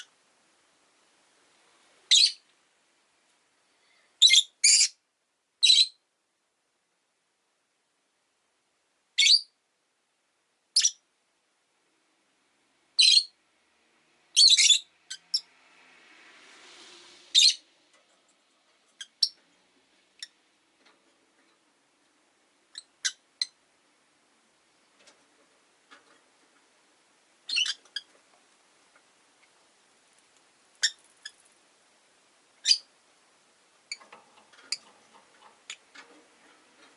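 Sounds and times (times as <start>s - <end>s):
lovebirds screeching: 2.1s - 2.4s, 4.2s - 5.0s, 13.0s - 13.4s, 14.4s - 15.5s, 17.4s - 17.6s, 27.5s - 28.1s, 30.8s - 31.4s, 32.6s - 32.9s.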